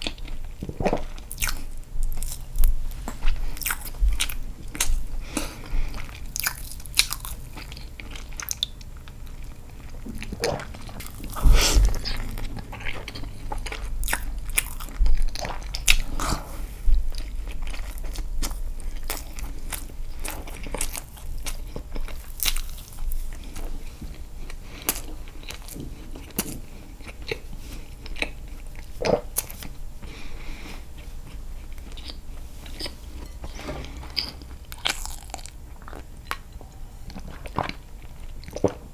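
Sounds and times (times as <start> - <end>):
chewing mouth sounds: 0.0 - 29.7.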